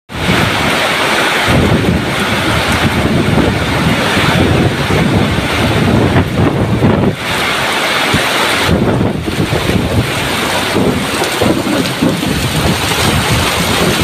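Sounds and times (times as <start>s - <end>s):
heavy rain hissing: 0.1s - 14.0s
wind buffeting microphone: 0.1s - 14.0s.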